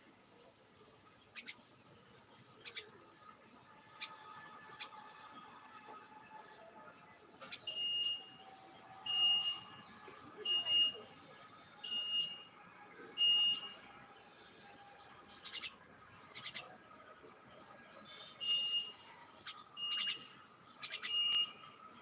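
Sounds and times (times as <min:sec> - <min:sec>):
bird chirps: 0:07.4 - 0:16.8, 0:17.6 - 0:22.0.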